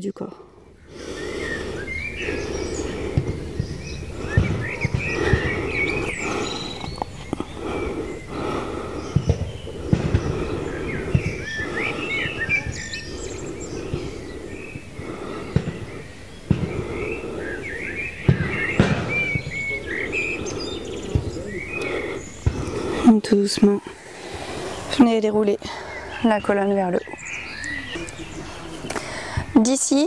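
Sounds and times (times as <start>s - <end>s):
birds chirping: 0.0s - 30.0s
steady low rumble: 0.4s - 29.6s.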